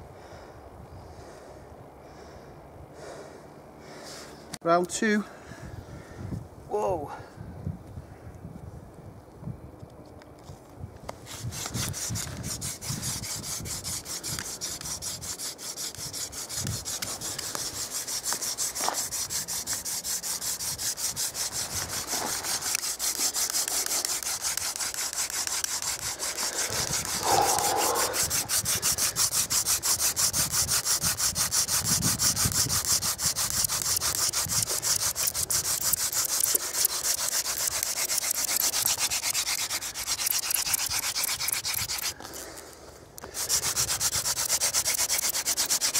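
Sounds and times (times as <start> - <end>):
wooden spindle rasping on board: 11.3 - 42.2, 43.2 - 45.9.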